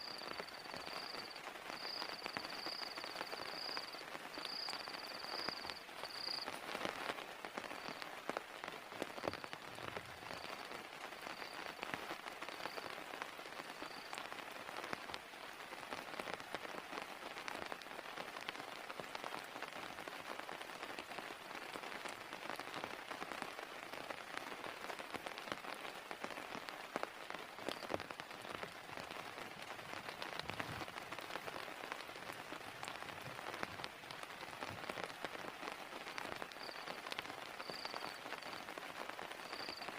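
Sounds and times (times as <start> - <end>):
heavy rain falling: 0.0 - 39.9
raindrops tapping close by: 0.0 - 39.9
faint high chirp: 36.6 - 37.0, 37.6 - 38.7, 39.4 - 39.9.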